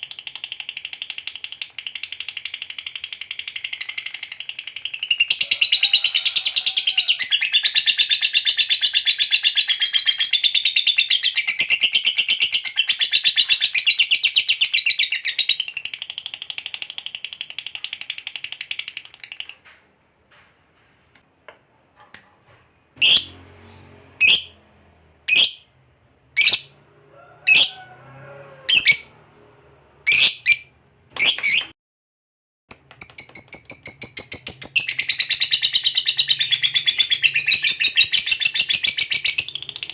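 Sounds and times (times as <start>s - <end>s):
lovebird sharp calls: 23.0s - 23.3s, 26.4s - 26.7s
lovebird chattering trill: 26.4s - 26.7s.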